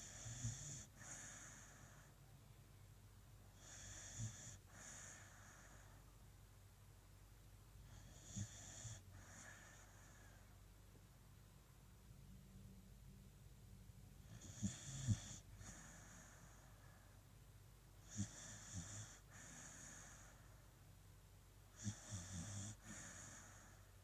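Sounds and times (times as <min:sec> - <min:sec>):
dog snoring: 0:00.0 - 0:02.1, 0:03.6 - 0:06.0, 0:07.9 - 0:10.5, 0:14.2 - 0:17.0, 0:18.0 - 0:20.5, 0:21.7 - 0:23.9.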